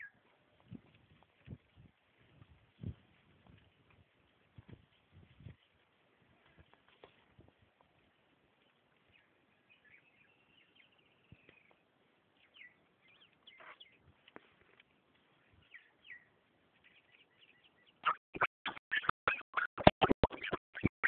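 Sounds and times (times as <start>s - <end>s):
bird chirps: 8.6s - 11.8s, 12.4s - 14.0s, 15.3s - 21.0s.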